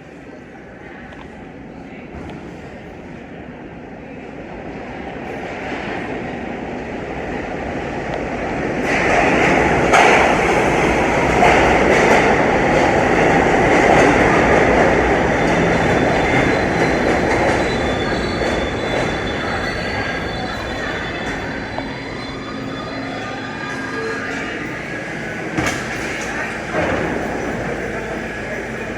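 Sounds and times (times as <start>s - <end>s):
subway train rumbling: 0.0s - 28.9s
faint high wheel squeal: 15.3s - 28.9s.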